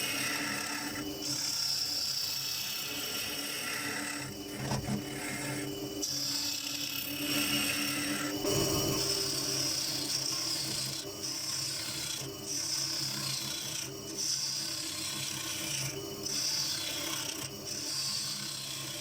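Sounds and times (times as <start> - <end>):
gouge cutting wood on lathe: 4.5 - 5.4.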